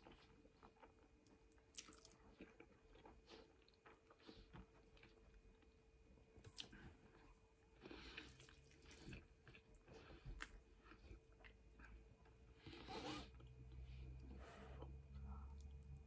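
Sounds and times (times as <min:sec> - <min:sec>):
chewing and wet mouth sounds: 0:00.0 - 0:16.0.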